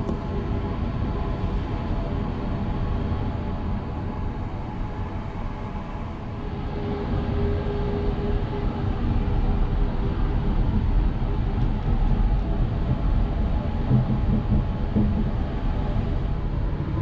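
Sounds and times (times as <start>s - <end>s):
train wheels rumbling on rails: 6.8s - 17.0s.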